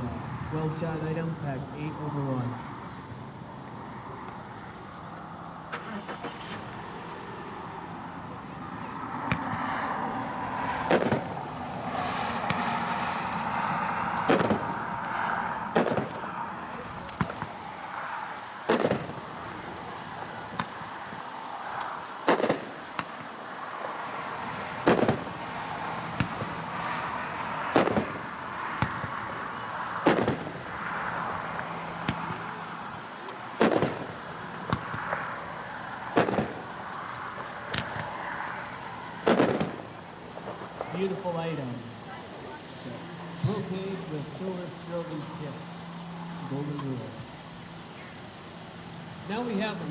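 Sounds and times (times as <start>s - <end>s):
fainter firework pops: 9.2s - 10.0s, 10.7s - 13.2s, 14.2s - 17.9s, 18.6s - 41.6s
firework shell bursts: 10.8s - 41.8s.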